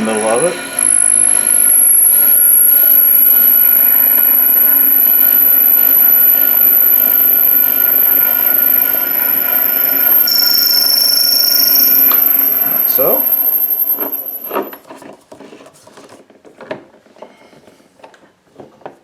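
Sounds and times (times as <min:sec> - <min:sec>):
lathe drilling wood whine: 0:00.0 - 0:14.8
low squeal: 0:00.0 - 0:14.8.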